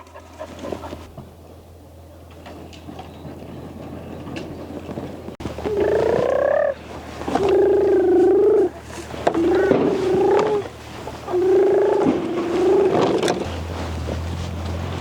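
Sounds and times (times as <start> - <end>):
donkey braying: 5.4 - 13.7.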